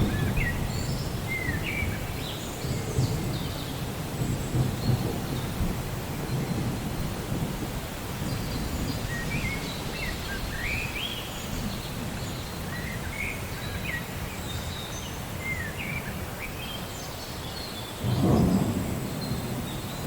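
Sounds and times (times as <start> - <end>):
low thunder rumble: 0.0 - 9.6, 18.0 - 20.0
steady rain: 0.0 - 20.0.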